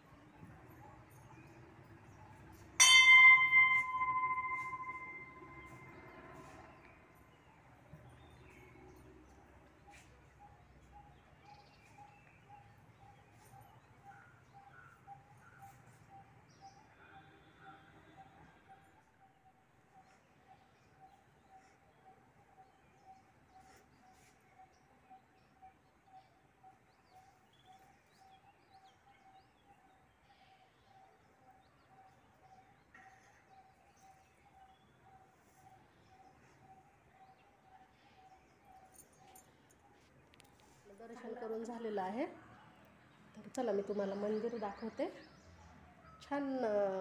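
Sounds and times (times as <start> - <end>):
faint birdsong: 0.0 - 47.0
other birds chirping: 1.0 - 16.4.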